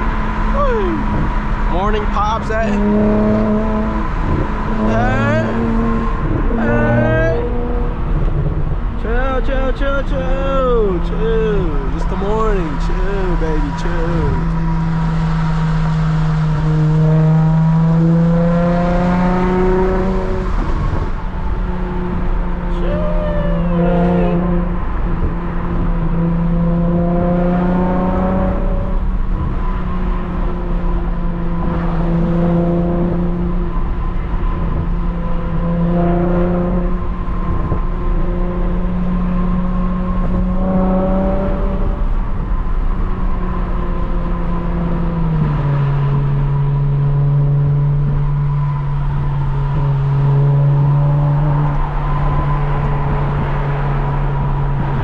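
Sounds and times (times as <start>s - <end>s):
car exhaust droning: 0.0s - 55.0s.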